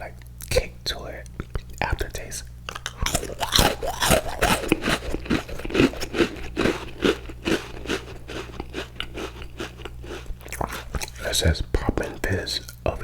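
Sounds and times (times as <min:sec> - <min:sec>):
crunchy cookie being chewed: 0:02.7 - 0:12.8.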